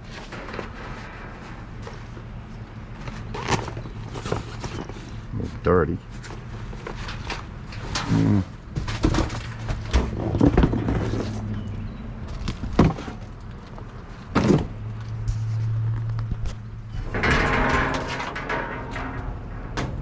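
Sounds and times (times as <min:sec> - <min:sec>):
items knocking and clattering: 0:06.2 - 0:11.5.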